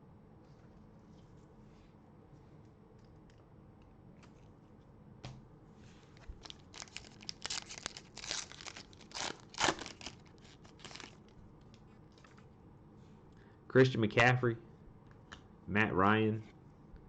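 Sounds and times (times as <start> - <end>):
plastic wrapper tearing and crinkling: 6.2 - 11.4.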